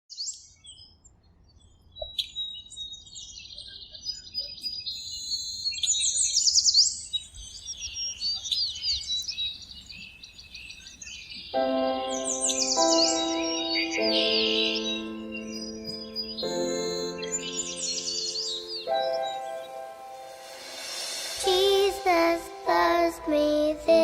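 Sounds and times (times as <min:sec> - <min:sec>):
songbirds chirping and singing: 0:01.6 - 0:20.5.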